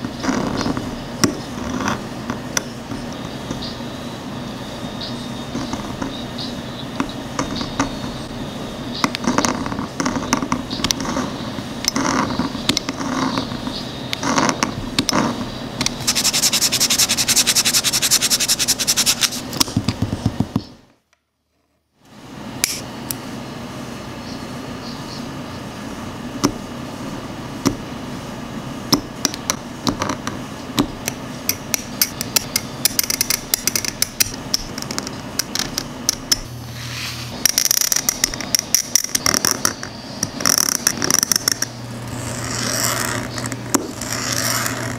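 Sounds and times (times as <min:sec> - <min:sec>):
hobby knife scraping plastic: 0:16.0 - 0:19.6.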